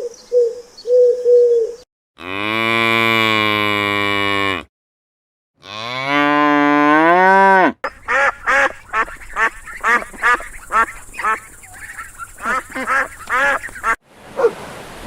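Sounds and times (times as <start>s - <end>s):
cow mooing: 2.2s - 4.7s, 5.6s - 7.8s
waterfowl quacking: 7.8s - 14.5s.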